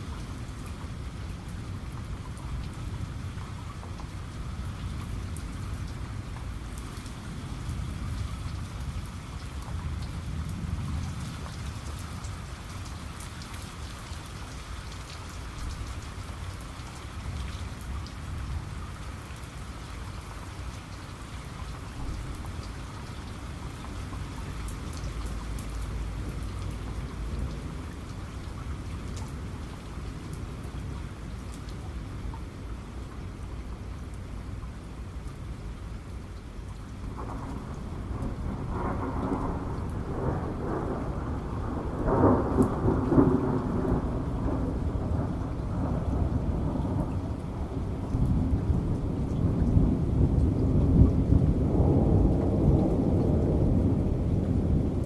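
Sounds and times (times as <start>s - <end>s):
heavy rain: 0.0s - 55.0s
raindrops ticking on a surface: 0.0s - 55.0s
distant thunder rumbling: 37.1s - 55.0s.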